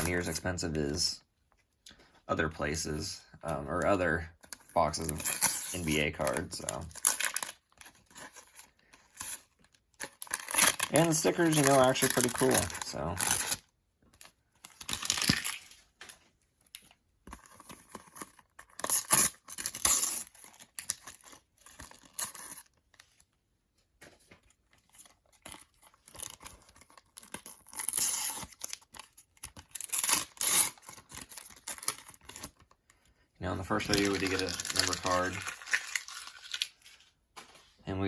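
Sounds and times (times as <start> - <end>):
sticker packets torn and crinkled: 4.8 - 8.6, 10.0 - 13.6, 14.7 - 16.1, 25.3 - 32.7, 33.6 - 37.0.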